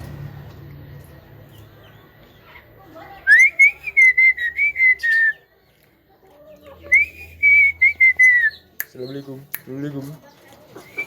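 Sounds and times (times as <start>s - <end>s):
bird whistling: 3.3s - 5.5s, 6.9s - 8.7s.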